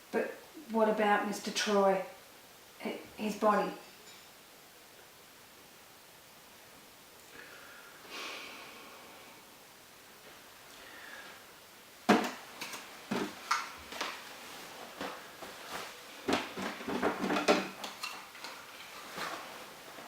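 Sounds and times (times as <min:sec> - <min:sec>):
hard objects clicking and clattering: 0:16.3 - 0:19.4.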